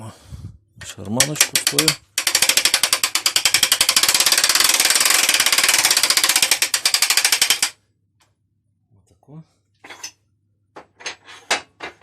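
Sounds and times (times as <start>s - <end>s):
ratchet clicking: 1.2s - 7.8s.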